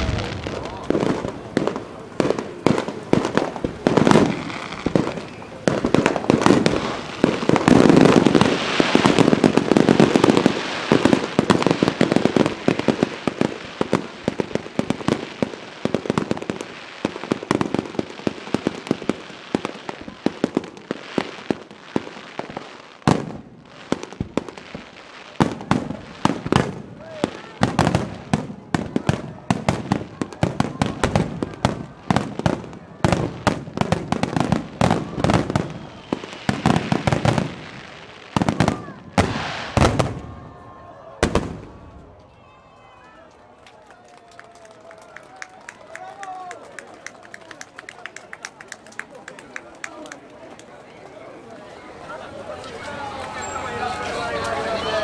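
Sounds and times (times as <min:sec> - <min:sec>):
fireworks bursting and crackling: 0:00.0 - 0:42.4
fireworks cracks and bangs: 0:00.0 - 0:42.4.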